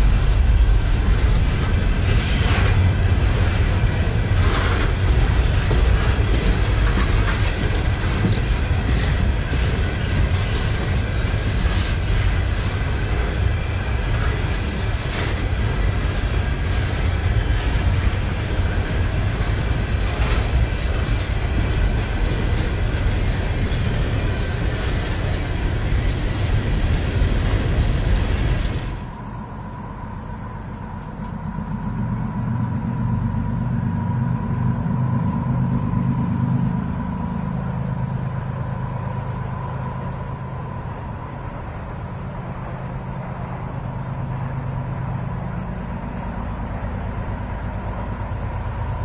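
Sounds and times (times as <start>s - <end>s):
low rumble: 0.0s - 7.1s, 26.7s - 41.8s
train wheels clicking over rails: 0.0s - 49.0s.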